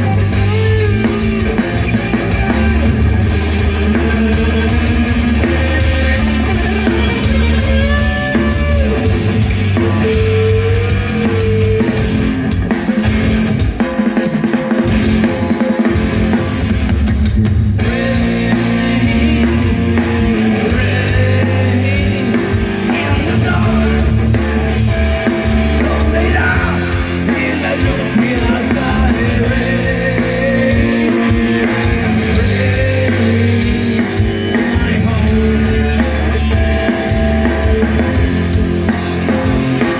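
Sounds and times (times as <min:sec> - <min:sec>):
bass: 0:00.0 - 0:14.0, 0:14.8 - 0:39.9
drum kit: 0:00.0 - 0:39.9
electric guitars: 0:00.0 - 0:39.9.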